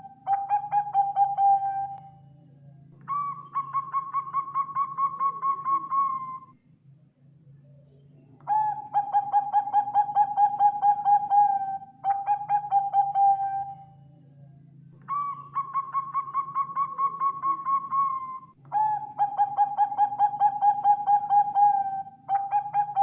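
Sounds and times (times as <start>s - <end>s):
dove cooing: 0.0s - 2.1s, 3.1s - 6.4s, 8.5s - 13.9s, 15.1s - 23.0s.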